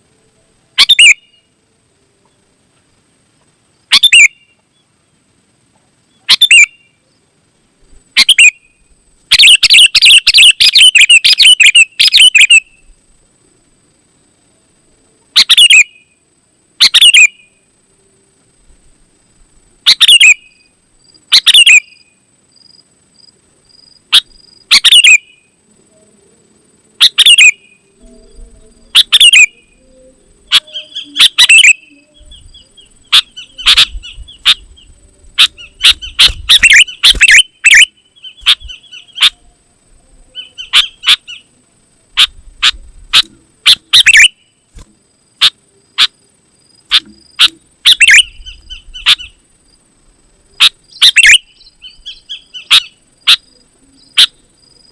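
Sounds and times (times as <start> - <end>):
bird calling in sharp notes: 0.8 - 1.5, 3.9 - 4.6, 6.1 - 7.0, 8.2 - 12.9, 15.4 - 16.2, 16.8 - 17.5, 19.9 - 20.7, 21.3 - 22.1, 24.1 - 25.6, 27.0 - 39.6, 40.3 - 41.6, 42.2 - 44.6, 46.9 - 49.4, 50.6 - 54.4.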